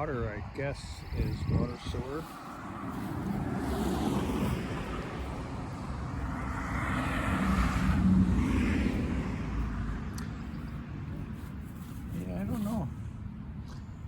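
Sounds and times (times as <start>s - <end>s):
vehicle passing by: 1.1s - 11.6s.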